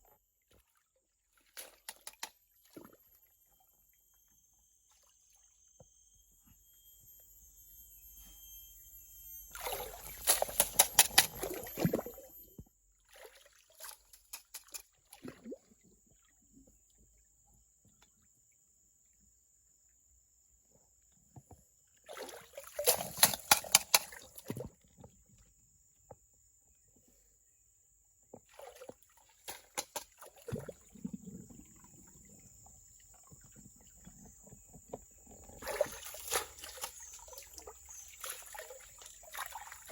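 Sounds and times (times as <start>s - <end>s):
water splashing and sloshing: 0.3s - 3.1s, 9.5s - 16.4s, 22.0s - 25.2s, 28.3s - 39.9s
faint high-pitched tone: 2.6s - 12.8s.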